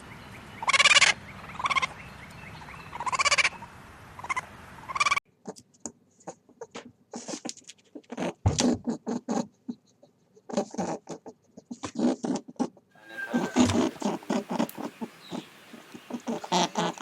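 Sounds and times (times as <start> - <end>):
small animal scratching and rustling: 5.5 - 17.0.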